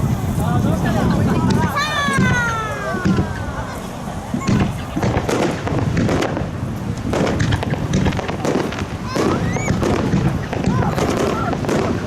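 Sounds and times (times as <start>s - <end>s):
fireworks bangs and crackles: 0.0s - 12.0s
whistle of launching firework: 9.2s - 12.0s.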